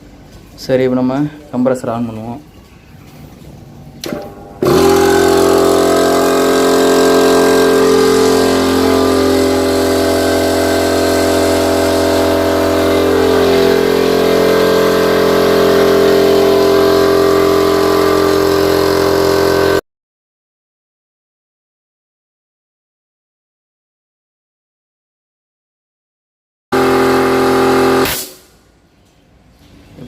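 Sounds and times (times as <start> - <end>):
air compressor running: 3.8 - 19.8, 26.7 - 28.8.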